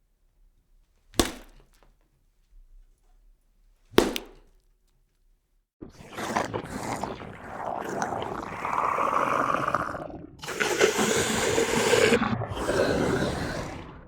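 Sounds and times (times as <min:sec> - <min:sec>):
creature growling: 0:05.8 - 0:14.0.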